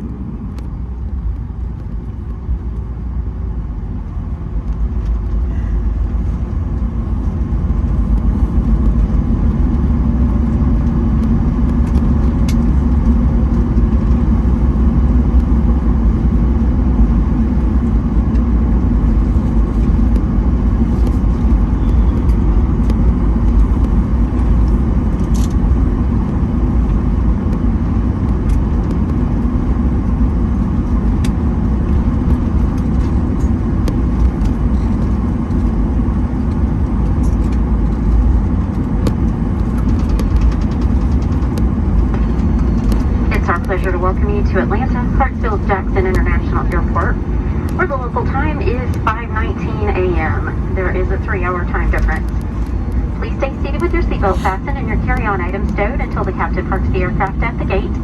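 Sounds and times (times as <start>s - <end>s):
airliner cabin engine rumble: 0.0s - 58.0s.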